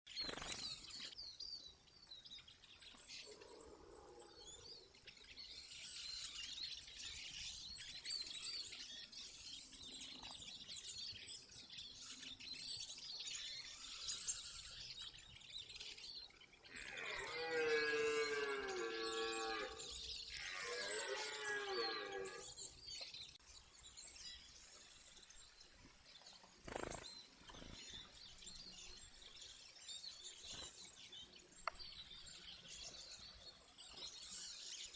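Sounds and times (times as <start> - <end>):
birds chirping: 0.1 - 34.9.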